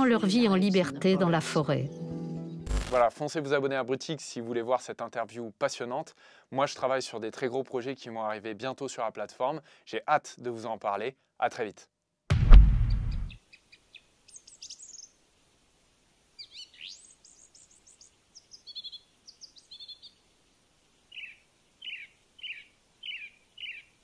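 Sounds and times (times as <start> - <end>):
birds chirping and trilling: 16.4 - 20.2, 21.1 - 24.0.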